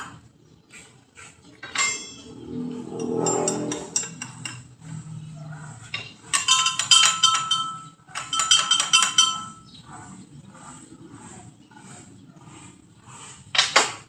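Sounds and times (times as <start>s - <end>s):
metal pieces clinking and rattling: 1.6s - 2.4s.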